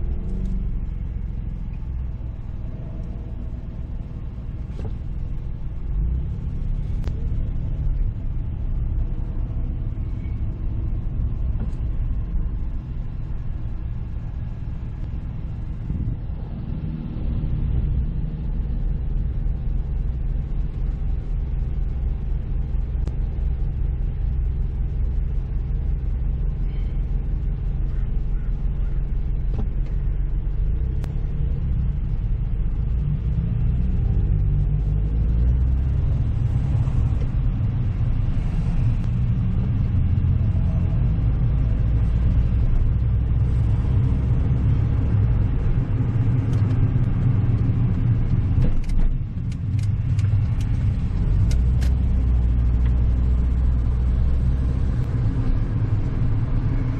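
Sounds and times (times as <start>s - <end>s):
car engine and road rumble: 0.0s - 56.9s
turn signal ticking: 48.0s - 53.2s.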